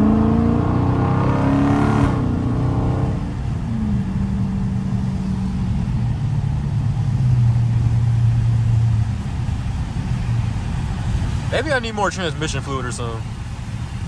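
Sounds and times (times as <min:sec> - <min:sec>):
car engine running: 0:00.0 - 0:14.0
man talking: 0:11.5 - 0:13.3.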